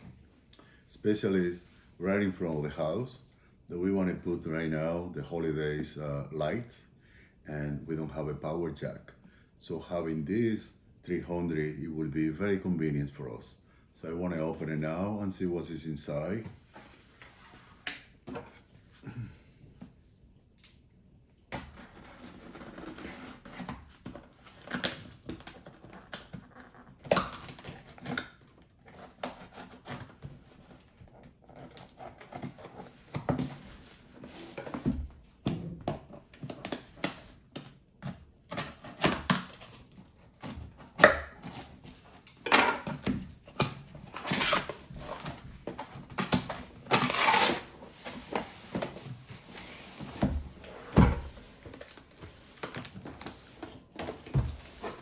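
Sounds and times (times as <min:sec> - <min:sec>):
cardboard tearing: 0:21.7 - 0:35.0, 0:42.8 - 0:55.0
packaging rustling: 0:42.9 - 0:55.0.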